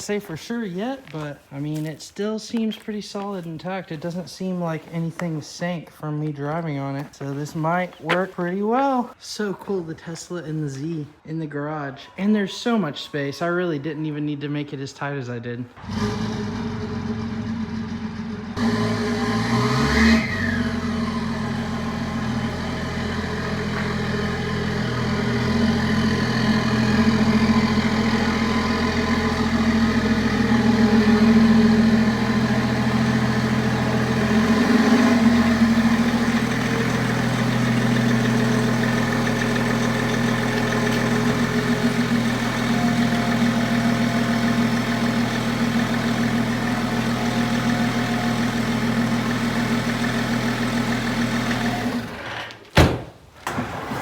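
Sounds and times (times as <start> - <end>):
car engine running and revving: 15.8 - 52.2.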